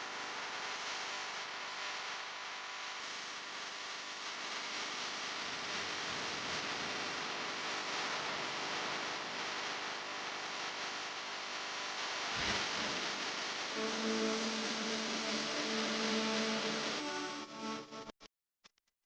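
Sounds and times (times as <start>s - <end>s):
steady hiss: 12.2s - 17.5s.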